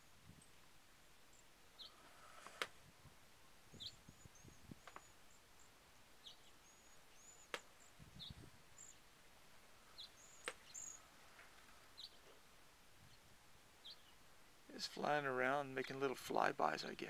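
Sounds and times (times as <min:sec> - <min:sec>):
small birds chirping: 0:00.0 - 0:17.0
sharp clicks: 0:07.5 - 0:07.7.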